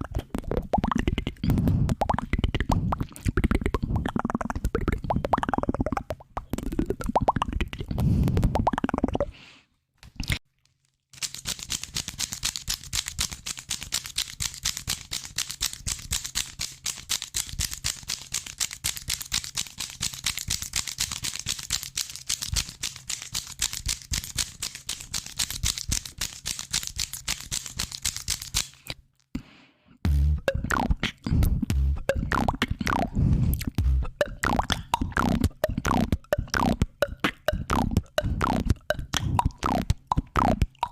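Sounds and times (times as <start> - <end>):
wet popping mouth sounds: 0.0 - 9.3, 30.1 - 40.9.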